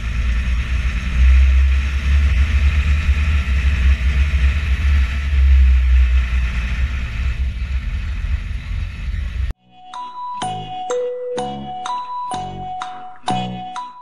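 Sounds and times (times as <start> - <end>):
tractor engine rumble: 0.0 - 9.6
high whine: 0.0 - 13.6.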